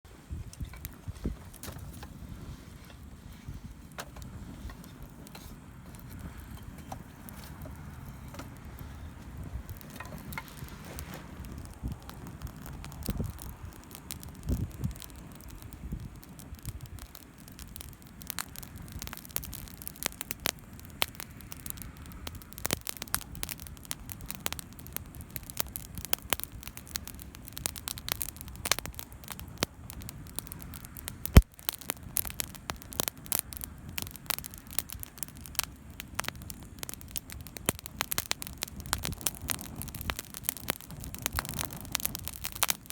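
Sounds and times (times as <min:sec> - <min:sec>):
low steady rumble: 0:00.1 - 0:17.0
campfire crackling and popping: 0:00.2 - 0:42.9.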